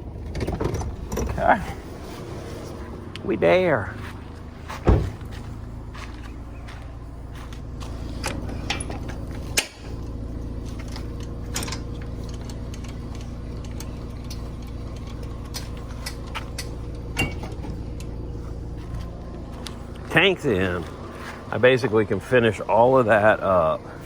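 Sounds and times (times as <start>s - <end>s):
low engine-like hum: 0.0s - 24.0s.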